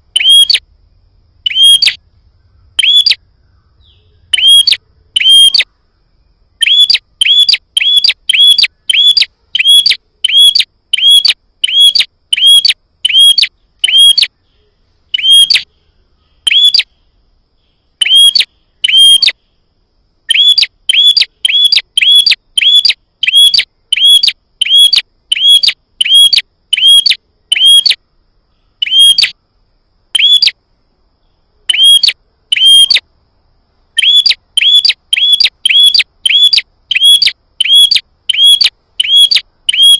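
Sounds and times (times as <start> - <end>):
sharp bird call notes: 2.8 - 3.2, 16.4 - 16.9.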